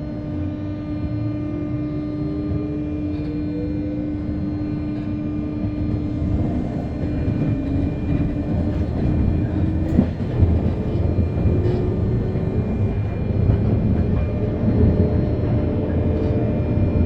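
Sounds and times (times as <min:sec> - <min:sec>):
electrical equipment hum: 0:05.4 - 0:15.9
train wheels rumbling on rail: 0:05.5 - 0:17.0.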